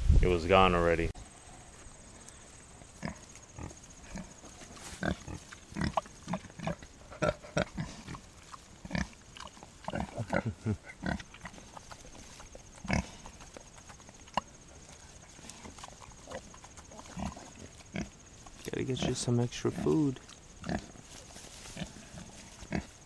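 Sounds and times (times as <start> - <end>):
pigs grunting: 2.9 - 23.0.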